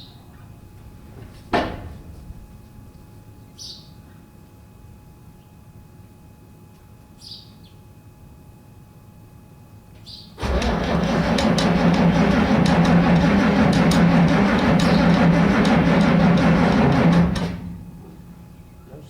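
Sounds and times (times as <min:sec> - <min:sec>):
starter cranking diesel engine: 0:10.4 - 0:18.3.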